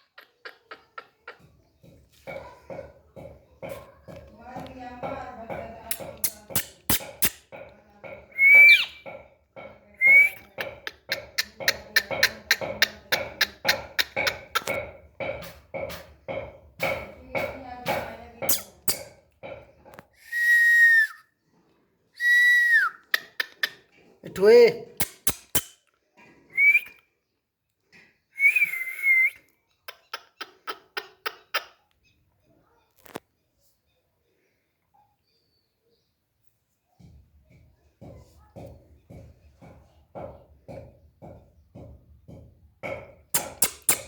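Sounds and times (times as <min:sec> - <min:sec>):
parakeet whistling: 0:08.4 - 0:09.0
person whistling: 0:08.4 - 0:09.0, 0:20.2 - 0:21.3, 0:22.2 - 0:23.0, 0:26.6 - 0:27.0, 0:28.4 - 0:29.4
sharp clicks: 0:25.0 - 0:25.8, 0:43.4 - 0:44.0.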